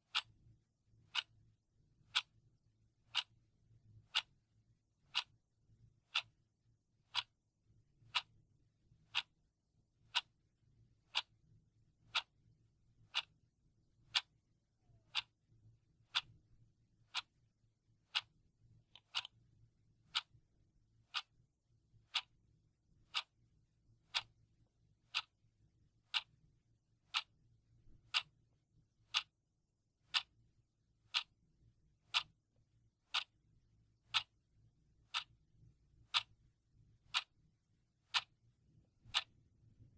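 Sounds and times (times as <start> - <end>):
clock ticking: 0.1 - 0.3, 1.1 - 1.3, 2.1 - 2.3, 3.1 - 3.3, 4.1 - 4.3, 5.1 - 5.3, 6.1 - 6.4, 7.1 - 7.3, 8.1 - 8.3, 9.1 - 9.3, 10.1 - 10.3, 11.1 - 11.3, 12.1 - 12.3, 13.1 - 13.3, 14.1 - 14.3, 15.1 - 15.3, 16.1 - 16.3, 17.1 - 17.3, 18.1 - 18.3, 18.9 - 19.3, 20.1 - 20.4, 21.1 - 21.3, 22.1 - 22.3, 23.1 - 23.3, 24.1 - 24.3, 25.1 - 25.3, 26.1 - 26.3, 27.1 - 27.3, 28.1 - 28.4, 29.1 - 29.3, 30.1 - 30.3, 31.1 - 31.3, 32.1 - 32.4, 33.1 - 33.3, 34.1 - 34.3, 35.1 - 35.4, 36.1 - 36.4, 37.1 - 37.3, 38.1 - 38.4, 39.0 - 39.3.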